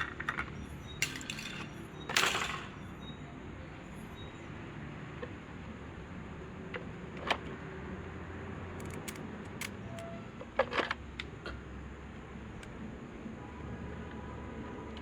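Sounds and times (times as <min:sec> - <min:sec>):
metal parts and tools clinking: 0:00.0 - 0:03.0, 0:08.8 - 0:10.1.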